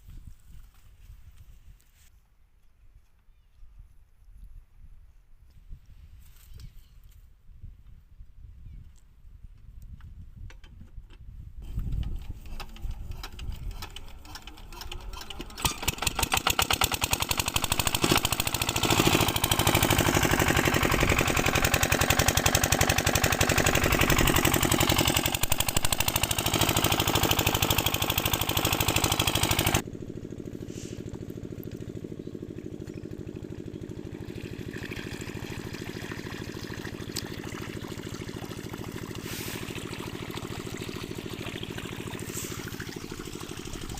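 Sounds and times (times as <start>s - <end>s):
diesel engine running: 11.6s - 43.9s.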